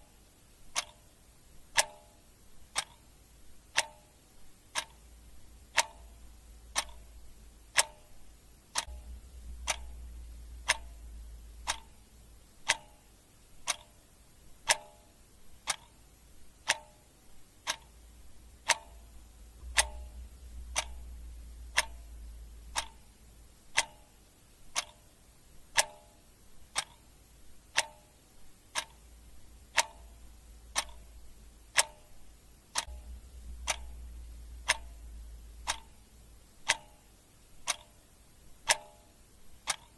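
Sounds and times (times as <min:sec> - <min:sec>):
clock ticking: 0:00.0 - 0:39.9
low rumble: 0:08.9 - 0:11.9, 0:18.6 - 0:23.6, 0:32.9 - 0:35.8.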